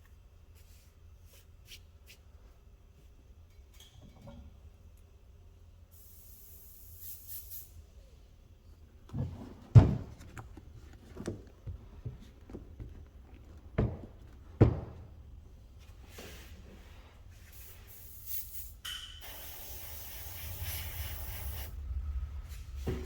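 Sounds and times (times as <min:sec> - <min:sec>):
spray hiss: 0:05.9 - 0:07.8, 0:17.5 - 0:21.8.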